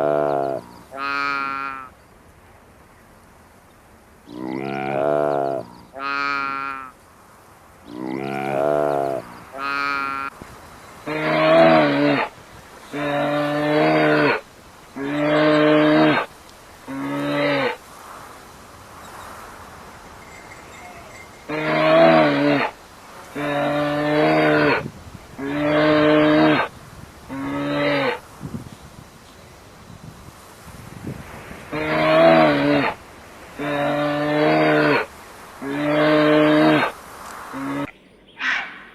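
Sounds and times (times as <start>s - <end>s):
cow mooing: 0.0s - 1.9s, 4.3s - 6.8s, 7.9s - 10.3s, 11.1s - 12.3s, 21.0s - 22.7s, 25.4s - 26.7s.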